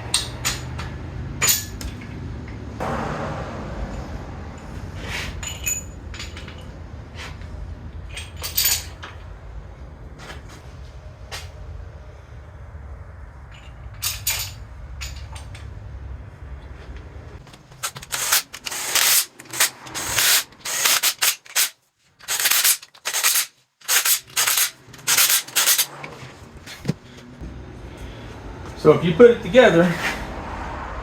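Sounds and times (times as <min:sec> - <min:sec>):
low hum: 0:00.0 - 0:21.6.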